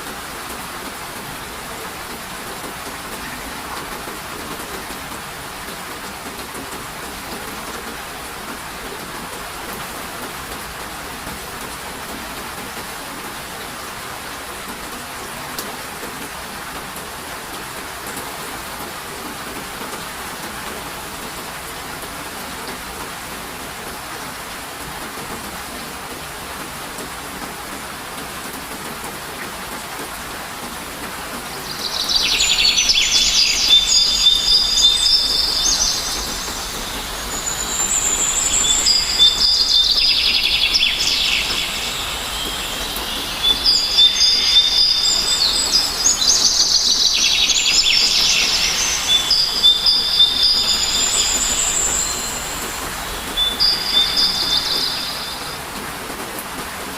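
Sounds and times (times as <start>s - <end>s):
steady rain: 0.0s - 56.9s
songbird chirping: 31.4s - 55.6s.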